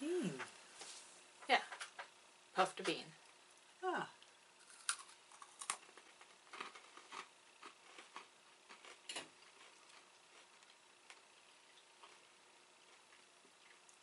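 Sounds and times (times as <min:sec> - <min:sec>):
person chewing crunchy beans: 0:04.2 - 0:14.0.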